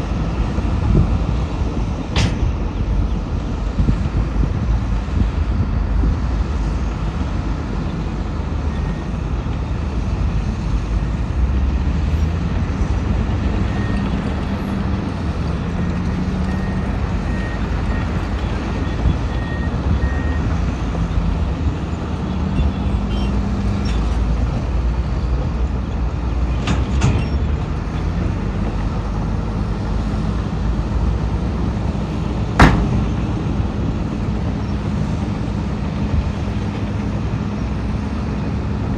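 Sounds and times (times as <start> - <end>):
diesel machinery engine rumbling: 0.0 - 38.9
sharp metallic bang: 32.6 - 33.2.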